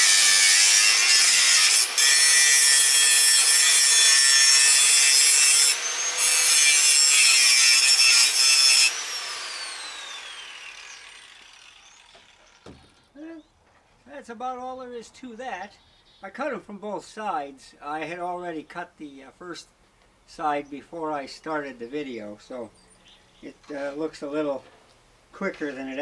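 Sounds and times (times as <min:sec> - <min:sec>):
angle grinder cutting steel: 0:00.0 - 0:12.6
grinder disc spinning down: 0:08.9 - 0:12.6.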